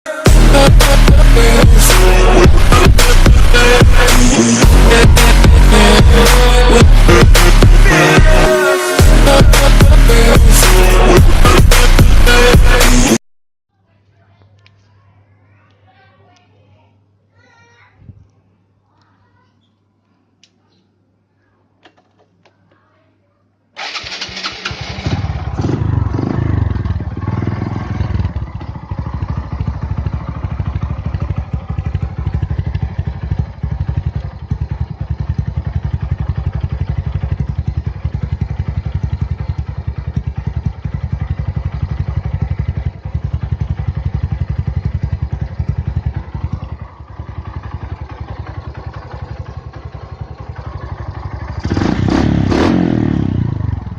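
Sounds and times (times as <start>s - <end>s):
motorcycle engine revving and idling: 0.3s - 13.2s, 23.8s - 53.9s.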